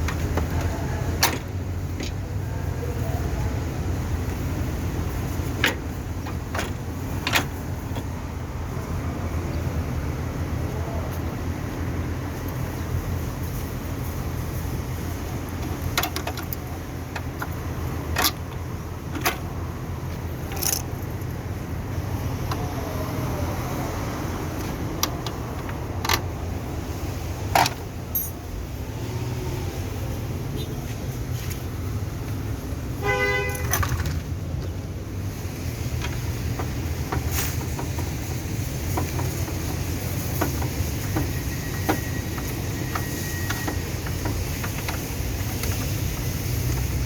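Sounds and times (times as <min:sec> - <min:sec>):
tools knocking and clicking: 0:05.5 - 0:08.1, 0:15.6 - 0:19.5, 0:27.5 - 0:28.4, 0:36.0 - 0:46.8.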